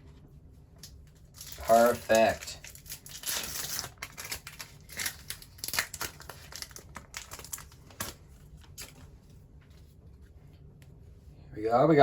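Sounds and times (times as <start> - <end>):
wrapper crinkling and tearing: 0.8 - 9.1.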